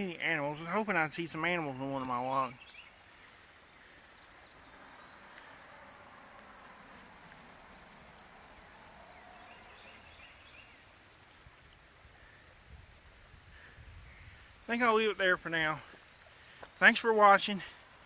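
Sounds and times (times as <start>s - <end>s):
insects trilling: 0.0s - 18.0s
faint chirps: 0.4s - 12.7s.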